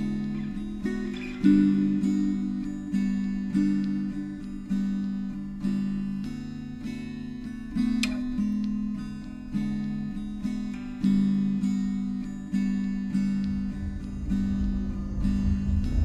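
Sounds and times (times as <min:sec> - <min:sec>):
acoustic guitar strumming: 0:00.0 - 0:16.0
low rumble: 0:13.2 - 0:16.0.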